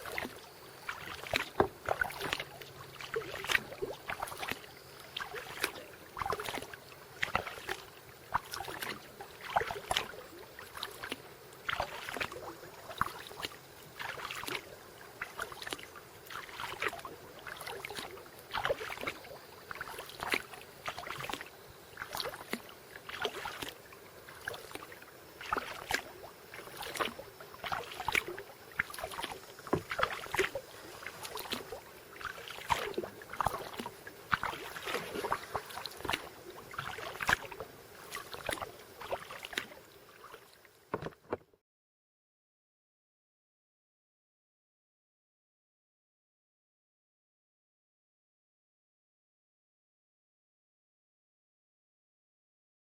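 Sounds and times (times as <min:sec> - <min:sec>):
paddle splashing through water: 0:00.0 - 0:41.5.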